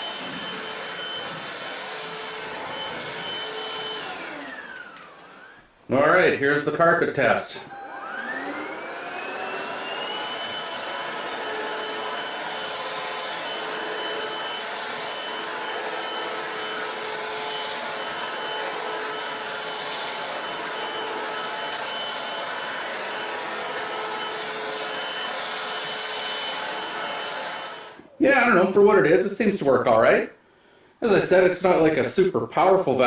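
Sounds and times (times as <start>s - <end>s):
vacuum cleaner motor whine: 0.0s - 5.7s, 7.6s - 28.2s.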